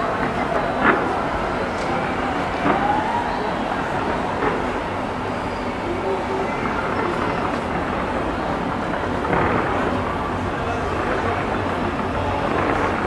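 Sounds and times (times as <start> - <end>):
fireworks bangs: 6.7 - 13.0.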